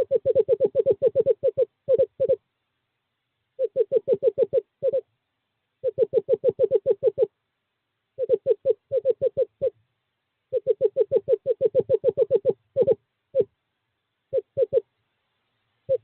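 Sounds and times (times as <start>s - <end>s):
screech owl hooting: 0.0s - 2.4s, 3.6s - 5.1s, 5.8s - 7.3s, 8.2s - 9.8s, 10.5s - 13.5s, 14.3s - 14.9s.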